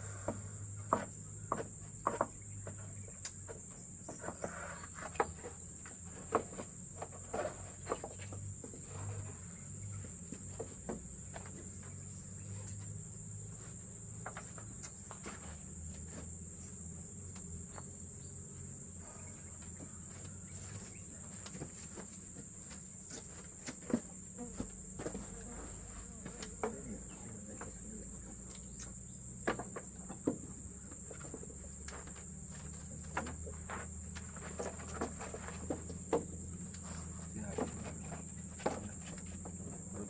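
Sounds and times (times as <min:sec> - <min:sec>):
forest insects droning: 0:00.0 - 0:40.0.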